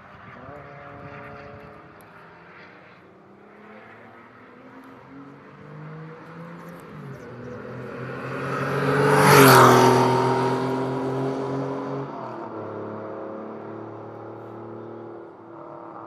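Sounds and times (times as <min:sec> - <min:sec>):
sports car passing at speed: 0:00.0 - 0:16.0.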